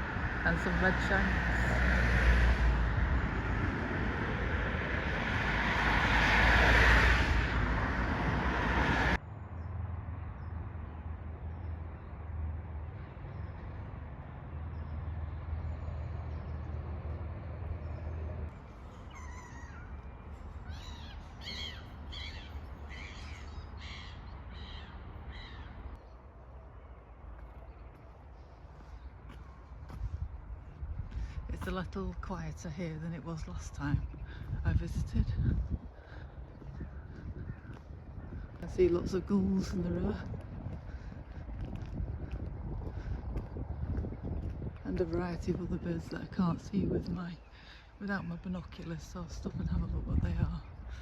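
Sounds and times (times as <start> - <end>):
loud road traffic: 0.0 - 51.0
crow cawing: 20.7 - 25.8.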